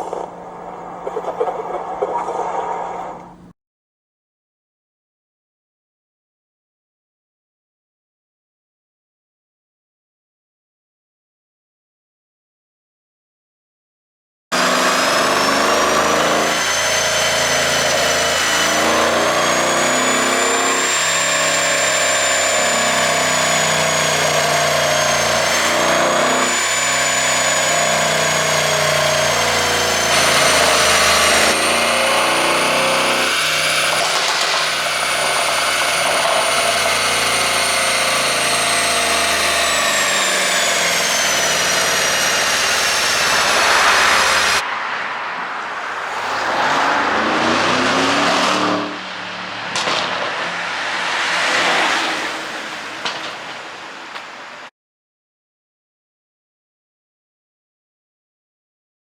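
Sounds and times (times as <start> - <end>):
car engine running: 0.0 - 3.5, 28.1 - 44.6.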